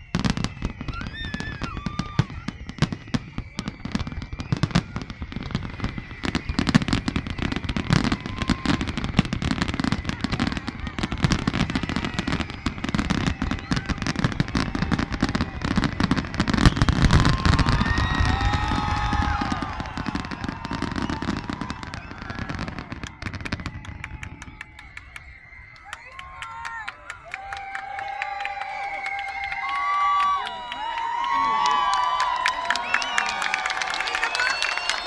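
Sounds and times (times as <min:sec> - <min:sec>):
fireworks low booms: 0:00.0 - 0:25.8
fireworks crackling and popping: 0:00.0 - 0:35.0
people shouting: 0:07.6 - 0:23.3.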